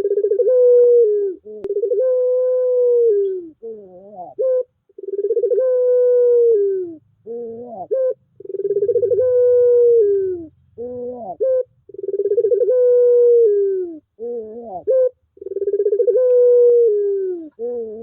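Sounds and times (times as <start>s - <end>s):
dove cooing: 0.0s - 18.0s.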